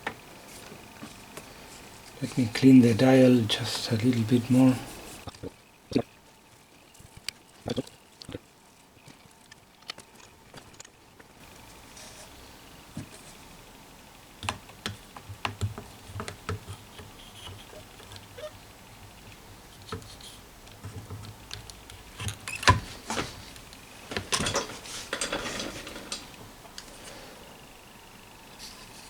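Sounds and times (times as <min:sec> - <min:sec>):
small clicks and taps: 0:14.4 - 0:18.3, 0:19.8 - 0:22.4.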